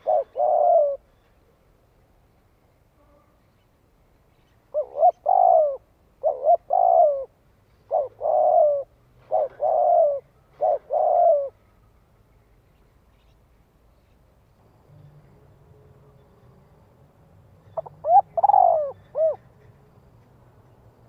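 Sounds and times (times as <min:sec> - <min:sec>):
dove cooing: 0:00.0 - 0:01.1, 0:04.7 - 0:11.6, 0:17.6 - 0:19.7.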